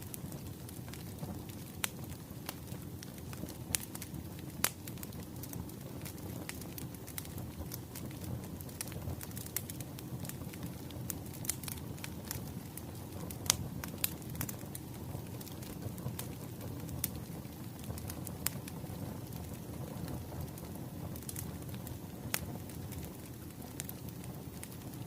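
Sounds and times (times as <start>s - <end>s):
fire rumbling: 0.0s - 25.0s
wood fire crackling: 0.0s - 25.0s.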